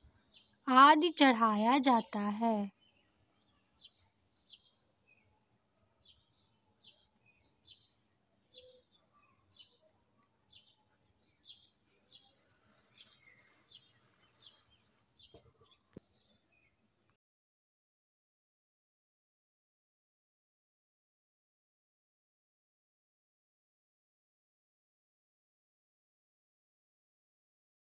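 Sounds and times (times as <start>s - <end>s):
faint small birds chirping: 0.0s - 17.2s.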